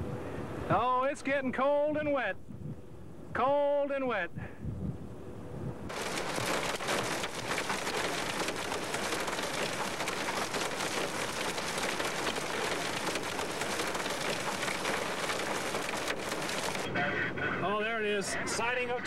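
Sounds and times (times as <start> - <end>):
heavy rain: 5.9 - 16.9.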